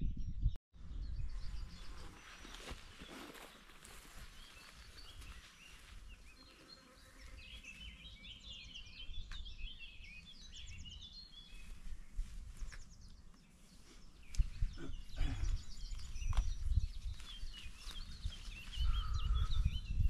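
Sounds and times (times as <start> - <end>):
songbird singing: 0.0 - 20.0.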